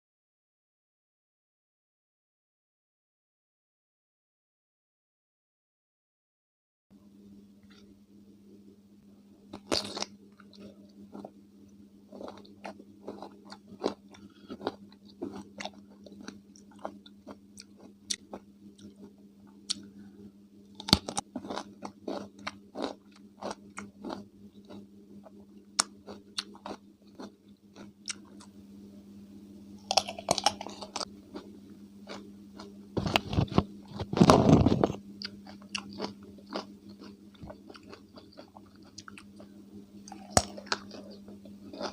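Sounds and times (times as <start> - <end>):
faint low hum: 6.9 - 41.9
crunching chews: 9.5 - 11.4, 12.1 - 19.9, 20.7 - 28.5, 29.8 - 41.9
biting crunchy cucumber: 9.6 - 10.6, 20.8 - 24.8, 29.8 - 39.4, 40.0 - 41.9.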